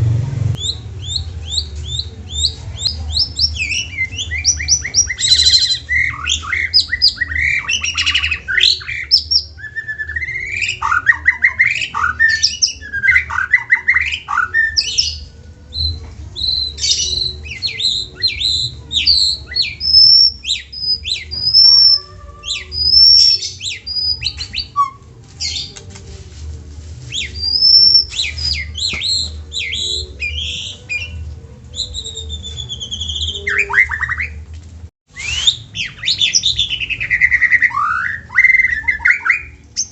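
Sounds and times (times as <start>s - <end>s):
steady low hum: 0.0s - 4.4s
songbird singing: 0.5s - 25.9s, 27.1s - 34.4s, 35.1s - 39.9s.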